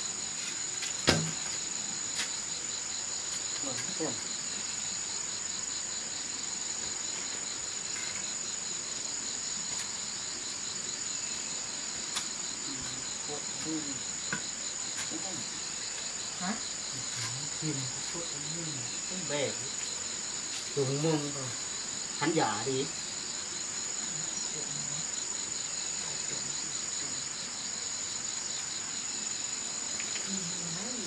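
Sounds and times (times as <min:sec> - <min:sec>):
insects calling: 0:00.0 - 0:31.0
sharp knock: 0:01.0 - 0:01.4.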